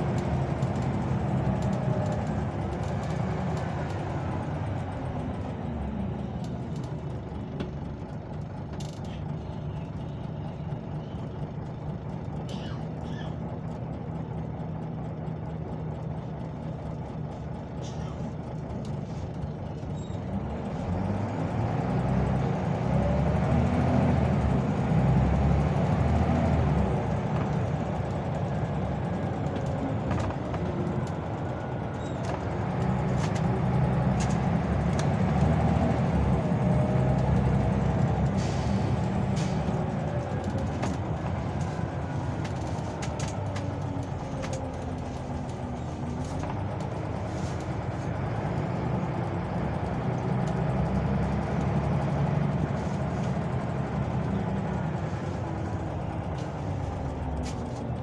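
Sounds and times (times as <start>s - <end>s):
bus engine under load: 0.0s - 58.0s
light clicks and rattles: 39.1s - 48.3s.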